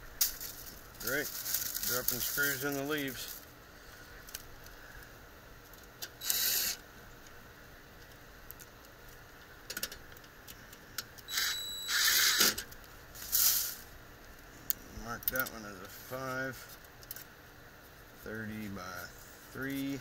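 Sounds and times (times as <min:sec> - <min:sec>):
rustling in dry leaves: 0:00.0 - 0:03.9.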